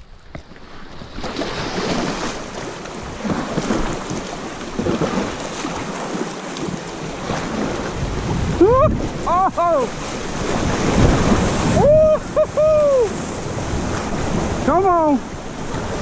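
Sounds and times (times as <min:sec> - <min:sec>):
whitewater rushing and splashing: 0:00.0 - 0:16.0.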